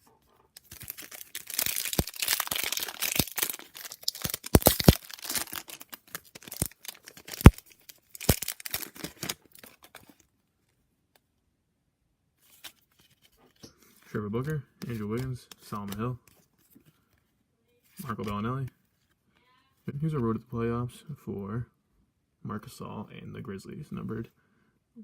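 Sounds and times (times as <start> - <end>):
foil wrapper tearing and crinkling: 0.6 - 10.2.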